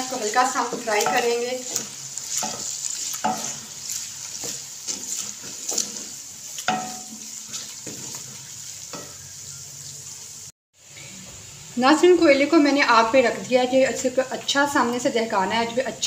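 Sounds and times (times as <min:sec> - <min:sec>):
wooden spoon scraping a pan: 0:00.0 - 0:10.2
onions sizzling in hot oil: 0:00.0 - 0:16.0.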